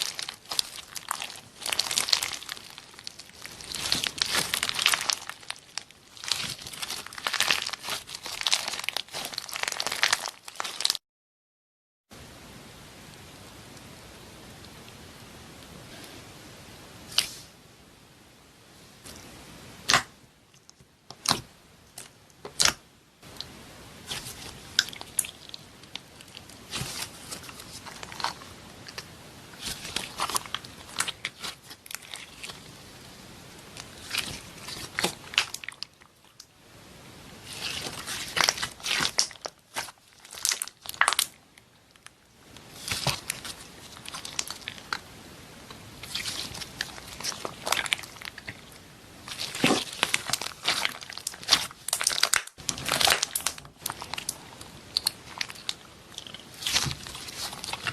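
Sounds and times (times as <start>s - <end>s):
slime clicking and popping: 38.0s - 41.3s.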